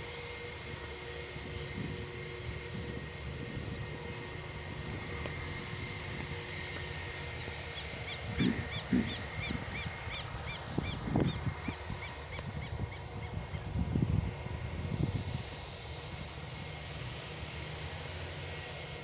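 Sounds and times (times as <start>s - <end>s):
distant engine noise: 0.0s - 19.0s
wind rumble: 0.0s - 19.0s
bird calling sharp notes: 7.6s - 13.3s.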